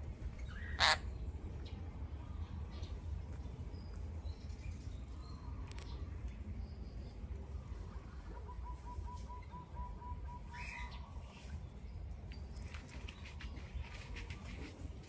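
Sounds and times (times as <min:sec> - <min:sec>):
bird chirp-like call: 0:00.4 - 0:01.1, 0:08.2 - 0:11.3.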